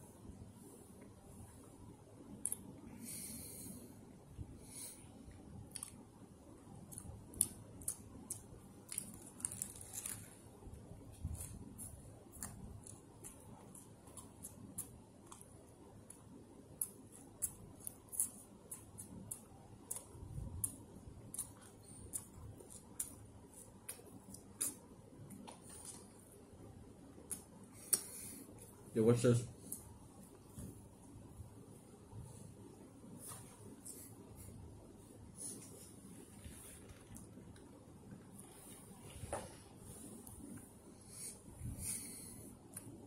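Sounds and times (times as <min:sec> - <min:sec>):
person chewing noisily: 0:06.8 - 0:10.4, 0:11.1 - 0:26.1.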